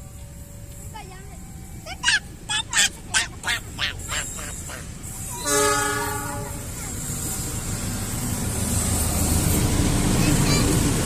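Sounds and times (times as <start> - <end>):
train rumble: 0.0 - 11.0
train horn blast: 5.4 - 6.8.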